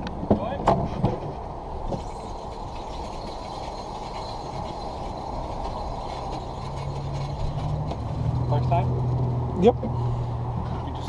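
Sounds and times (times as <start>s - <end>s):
sled rolling on steel track: 0.0s - 9.7s.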